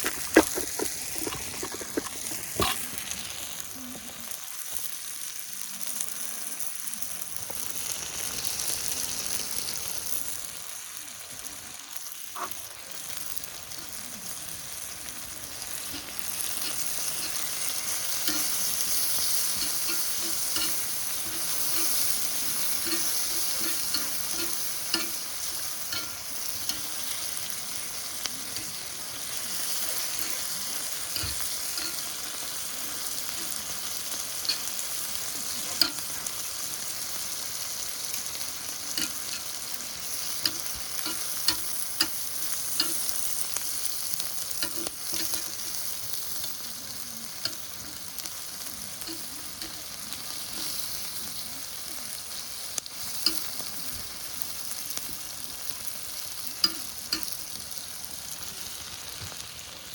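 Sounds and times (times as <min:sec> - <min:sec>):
meat sizzling in a frying pan: 0:00.0 - 0:59.9
utensil tapping a pan: 0:15.8 - 0:27.3, 0:40.3 - 0:43.1.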